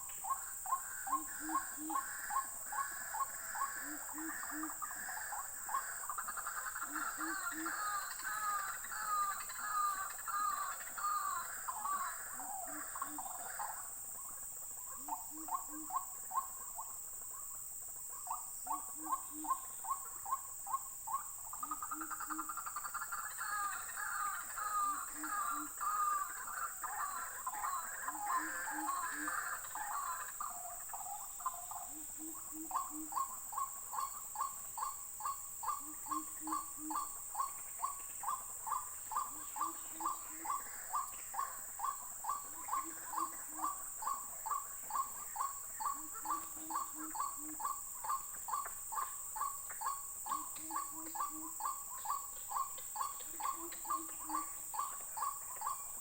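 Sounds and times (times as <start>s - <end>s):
insects buzzing: 0.0s - 56.0s
waterhens calling: 0.7s - 13.6s, 21.6s - 34.2s.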